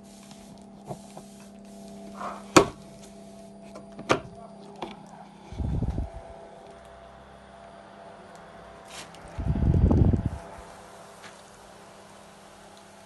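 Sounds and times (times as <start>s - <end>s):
cooling fan humming: 0.0s - 13.0s.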